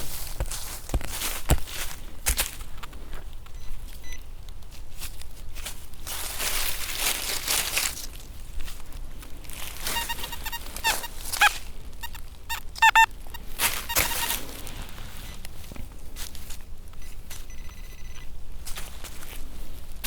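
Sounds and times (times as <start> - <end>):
metal detector beeps: 9.9 - 14.4, 17.0 - 18.3
metal detector steady tone: 9.9 - 14.4, 17.0 - 18.3.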